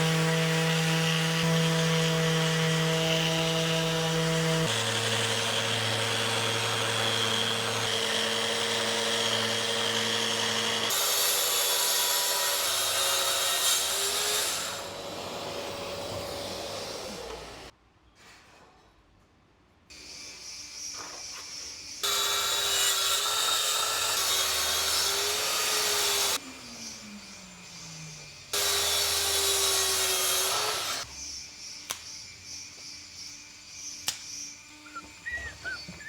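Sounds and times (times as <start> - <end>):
power tool motor cutting: 0.0 - 17.7, 28.0 - 31.1
quiet shop noise: 16.0 - 22.0.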